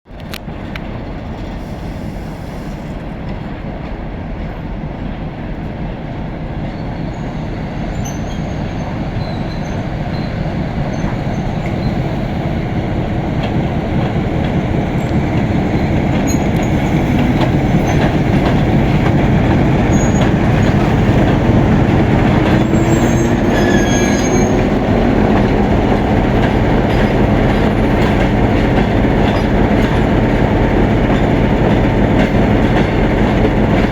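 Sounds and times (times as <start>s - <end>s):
train wheels rumbling on rail: 0.1s - 33.9s
high wheel squeaks: 14.9s - 28.6s.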